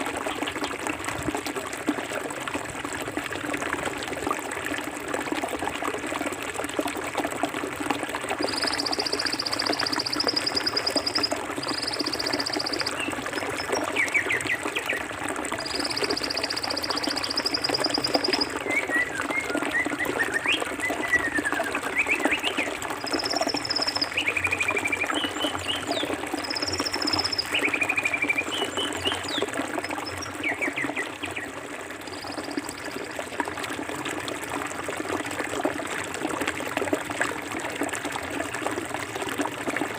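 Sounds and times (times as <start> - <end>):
stream trickling over rocks: 0.0 - 39.9
bird buzzy trills: 8.4 - 14.4.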